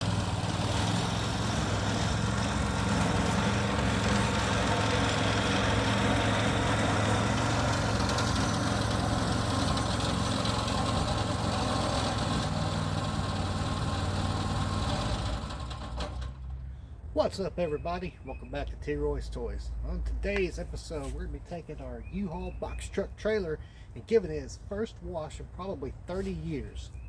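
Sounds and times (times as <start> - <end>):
engine idling: 0.0 - 17.1.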